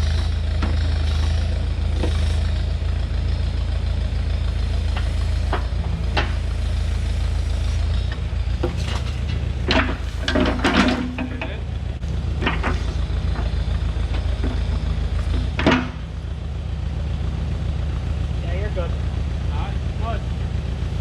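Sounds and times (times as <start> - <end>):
backhoe engine running: 0.0 - 21.0
sharp knocks and clanks: 0.5 - 1.1, 4.8 - 6.6, 8.1 - 16.2.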